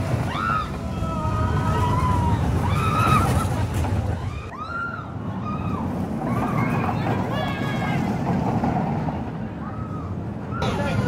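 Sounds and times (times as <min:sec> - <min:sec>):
people shouting: 0:00.2 - 0:03.5.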